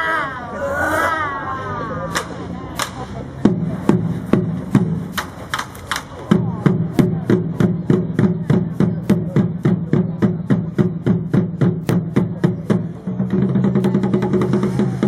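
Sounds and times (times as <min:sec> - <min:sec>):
drums beating: 0:02.1 - 0:15.0.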